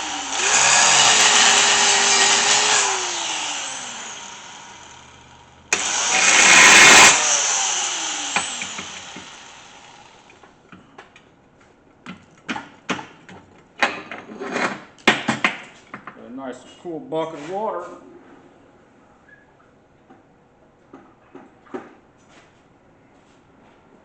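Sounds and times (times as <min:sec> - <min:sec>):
power tool winding down: 0:00.0 - 0:10.4.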